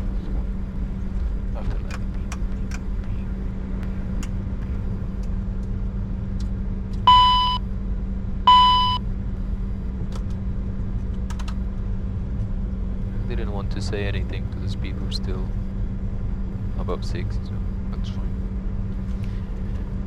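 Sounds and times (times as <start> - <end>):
low cockpit hum: 0.0 - 20.0
electronic beeps: 7.1 - 7.6, 8.5 - 9.0.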